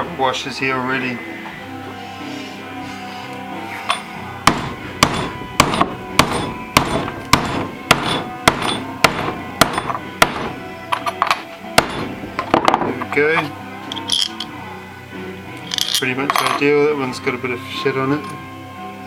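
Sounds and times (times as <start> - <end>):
hammer striking metal washers: 3.8 - 14.6, 15.6 - 16.8.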